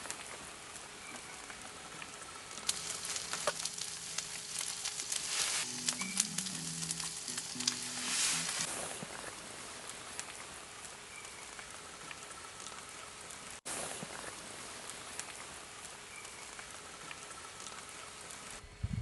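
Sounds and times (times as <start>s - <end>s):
fire pops and crackles: 0.0s - 18.6s
food sizzling in a hot pan: 2.6s - 8.9s.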